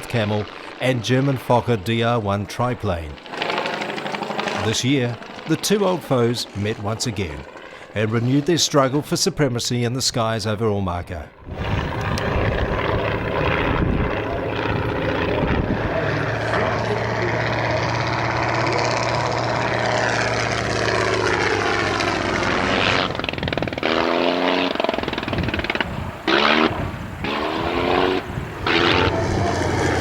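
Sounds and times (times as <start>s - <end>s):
propeller plane engine droning: 0.0s - 30.0s.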